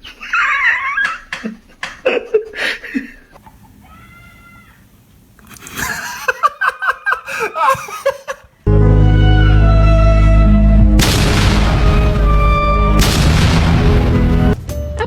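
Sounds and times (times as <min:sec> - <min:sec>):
person laughing: 0:00.0 - 0:03.4, 0:05.6 - 0:08.5
faint call: 0:03.6 - 0:05.0
loud music: 0:08.7 - 0:14.6.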